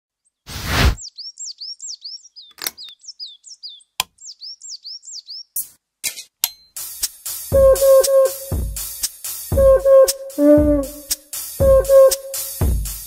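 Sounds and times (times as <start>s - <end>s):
bird chirping: 0.2s - 5.6s
short rushing burst: 0.5s - 1.0s.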